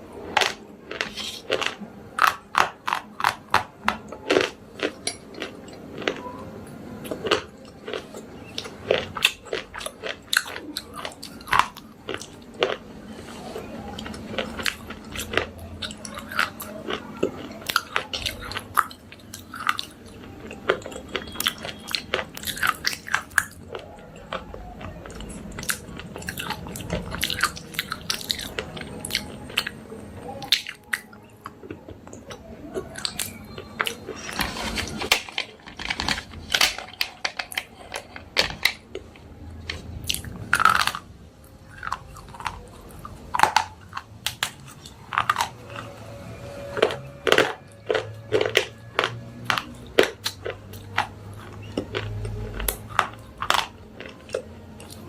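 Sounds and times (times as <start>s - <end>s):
slate pencils being chewed: 0.1s - 55.0s.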